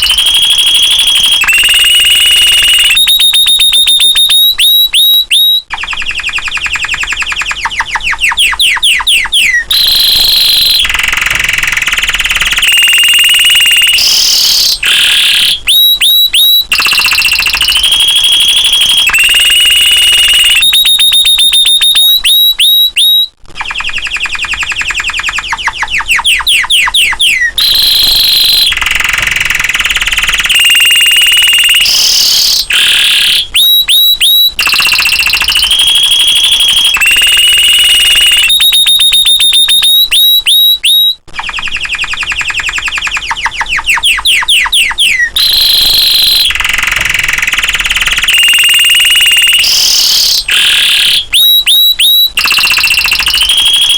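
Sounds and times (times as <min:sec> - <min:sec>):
canary singing: 0:00.0 - 0:53.9.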